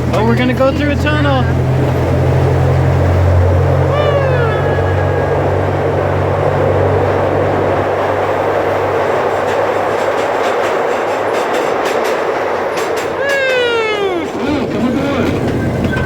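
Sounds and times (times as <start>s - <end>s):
low hum: 0.0s - 9.8s
train wheels rumbling on rail: 0.0s - 16.0s
wheels clickety-clack: 0.0s - 16.0s.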